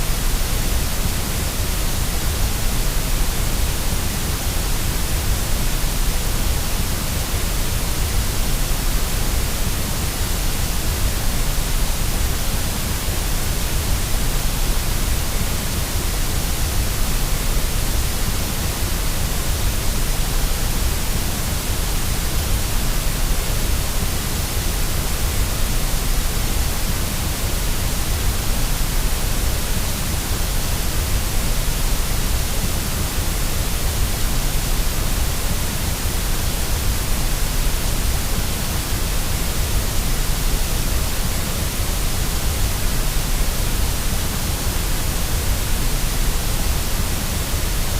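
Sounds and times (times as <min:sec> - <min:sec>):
steady white noise hiss: 0:00.0 - 0:47.9.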